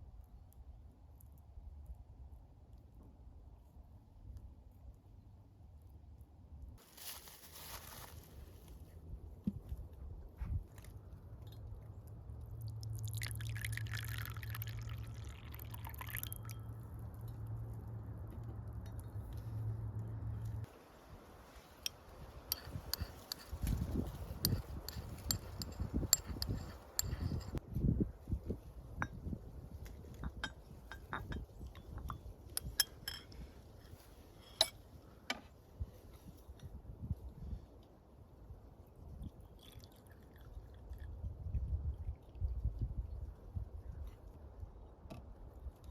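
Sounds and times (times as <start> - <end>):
low steady hum: 0.0 - 35.4
liquid pouring: 12.5 - 16.7
clinking cups and dishes: 22.5 - 27.6, 30.2 - 33.4.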